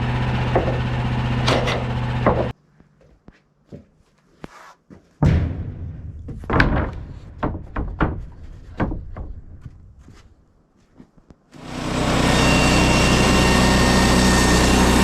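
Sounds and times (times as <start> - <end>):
thuds and knocks: 5.2 - 10.3.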